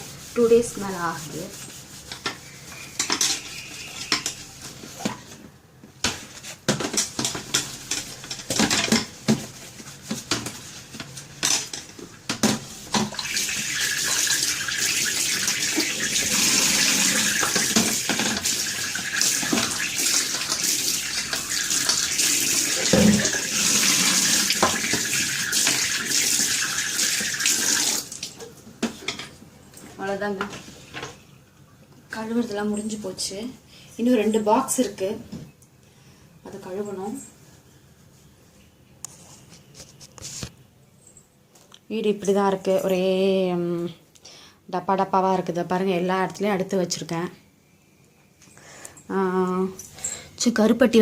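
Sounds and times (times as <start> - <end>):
containers clattering in a sink: 11.4 - 29.4
tap water running: 12.3 - 28.5.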